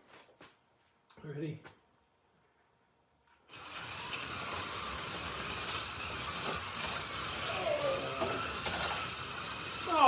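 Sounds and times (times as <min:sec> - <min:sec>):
slot car tyres on track: 0:03.5 - 0:10.0
small electric motors whirring: 0:03.5 - 0:10.0.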